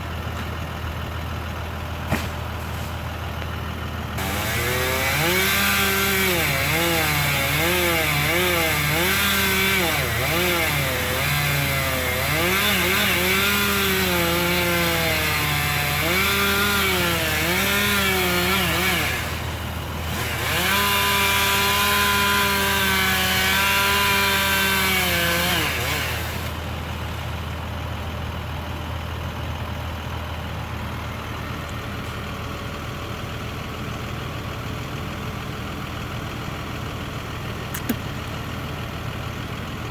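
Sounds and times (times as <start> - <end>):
chainsaw idling: 0.0 - 39.9
chainsaw cutting wood: 2.0 - 3.5, 4.1 - 27.0, 37.6 - 38.2.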